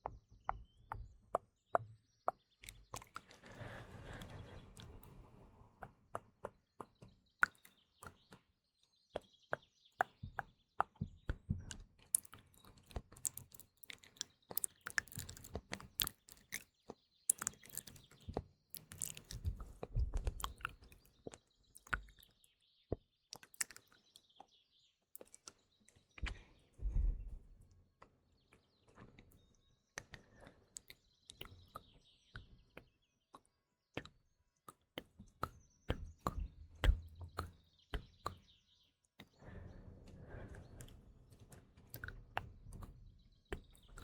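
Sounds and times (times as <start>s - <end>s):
faint birdsong chirps: 0.0s - 44.0s
wet mouth clicks and smacks: 12.2s - 18.2s, 18.8s - 19.6s, 23.3s - 23.9s.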